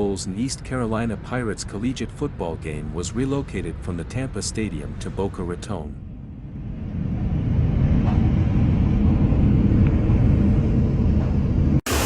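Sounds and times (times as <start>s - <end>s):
wind buffeting microphone: 6.0s - 11.8s.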